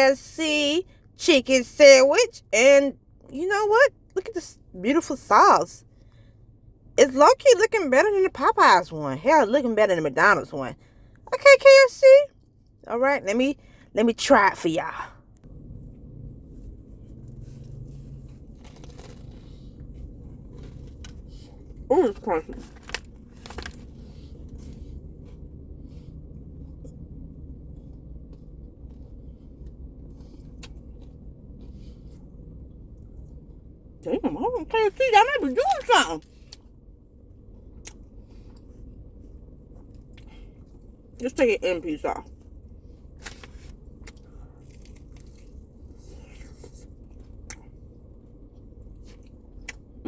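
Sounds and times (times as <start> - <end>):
steady low rumble: 0.0 - 50.0
crunchy chewing: 16.6 - 21.9, 22.5 - 33.5, 42.4 - 48.0
sharp crunch: 18.2 - 21.4.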